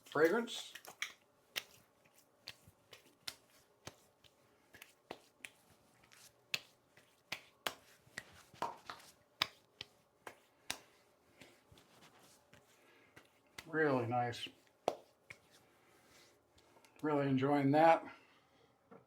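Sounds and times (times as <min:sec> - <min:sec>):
hands slapping face: 0:00.0 - 0:15.6.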